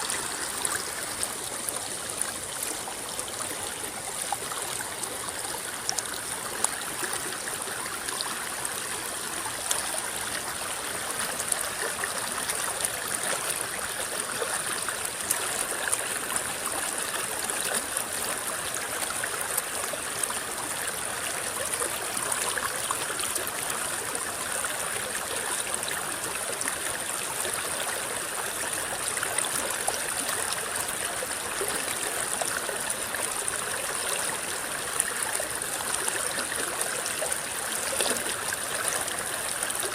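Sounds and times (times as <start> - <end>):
river babbling over stones: 0.0 - 39.9
small water splashes: 28.7 - 39.9.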